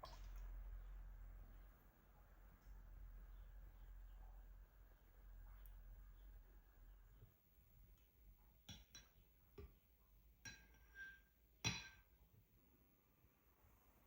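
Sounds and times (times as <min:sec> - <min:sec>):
dishes clinking: 0:08.6 - 0:09.2, 0:10.4 - 0:12.2.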